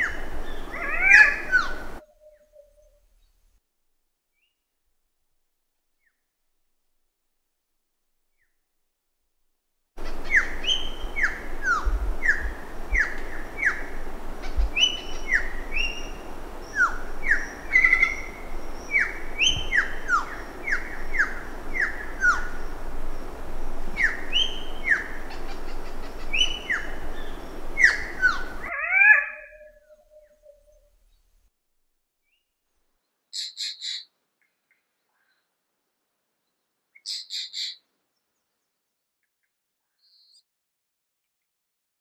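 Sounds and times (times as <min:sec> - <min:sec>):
birds whistling falling notes: 0:00.0 - 0:02.0, 0:10.0 - 0:30.3
steady background hiss: 0:00.0 - 0:03.4, 0:10.0 - 0:31.4.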